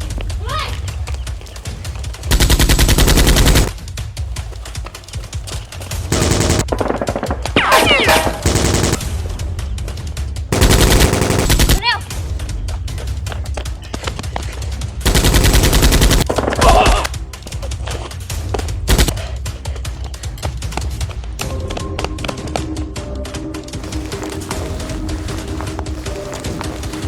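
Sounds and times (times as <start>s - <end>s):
background music: 0.0s - 27.0s
automatic gunfire: 2.3s - 3.7s, 6.1s - 9.2s, 10.5s - 11.8s, 15.1s - 16.3s, 18.9s - 19.1s.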